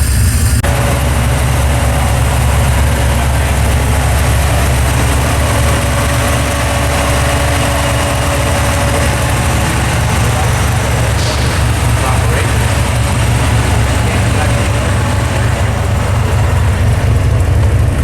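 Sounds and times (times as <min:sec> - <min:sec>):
car engine rumbling at low revs: 0:00.0 - 0:18.0.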